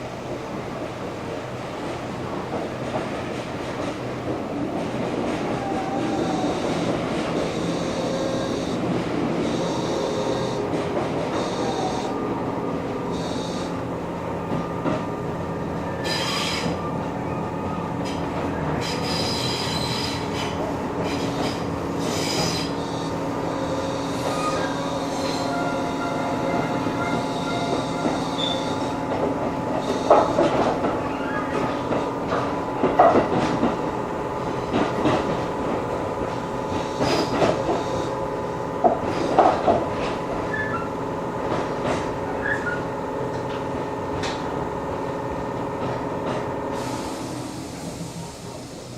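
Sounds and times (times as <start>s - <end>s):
electric train droning: 0.0s - 48.9s
high wheel squeal: 15.8s - 16.9s, 18.8s - 29.0s, 29.8s - 31.8s, 40.5s - 41.0s, 42.4s - 42.9s
wheels clacking over rail joints: 26.4s - 37.9s.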